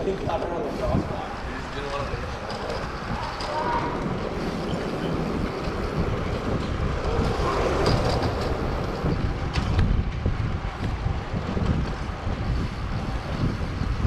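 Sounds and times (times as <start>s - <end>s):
street traffic: 0.0s - 14.0s
wind buffeting microphone: 0.0s - 14.0s.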